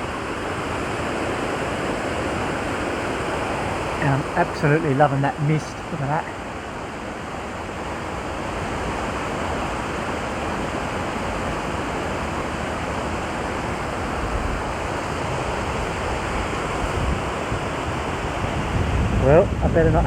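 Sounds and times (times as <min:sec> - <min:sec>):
creek rushing: 0:00.0 - 0:20.0
wind buffeting microphone: 0:13.7 - 0:20.0.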